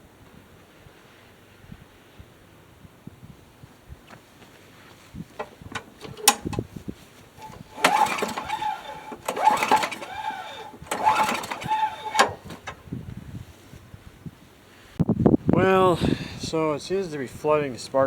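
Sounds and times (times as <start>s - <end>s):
mower starter cord whirring: 5.2s - 13.0s.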